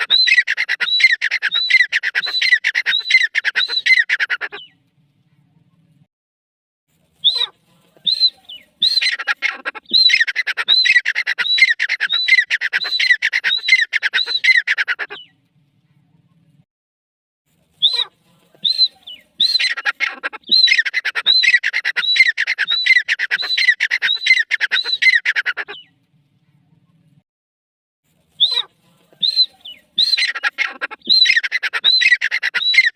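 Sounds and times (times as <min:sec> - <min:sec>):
francolin harsh repeated calls: 0:00.0 - 0:04.6, 0:07.2 - 0:15.1, 0:17.8 - 0:25.8, 0:28.4 - 0:32.9.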